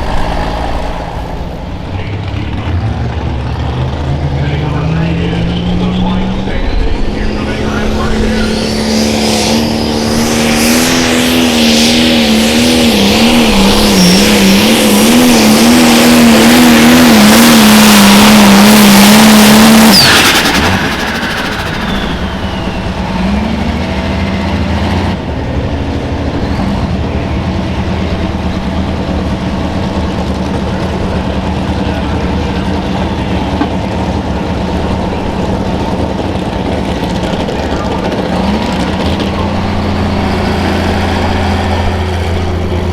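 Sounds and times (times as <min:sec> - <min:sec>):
turbo whistle winding down: 0:00.0 - 0:02.6, 0:04.7 - 0:25.2
diesel tractor engine under load: 0:00.0 - 0:42.9.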